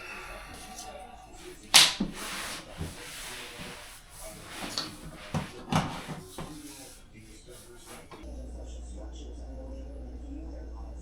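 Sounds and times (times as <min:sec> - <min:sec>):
rubbing and scraping: 0:00.1 - 0:08.3.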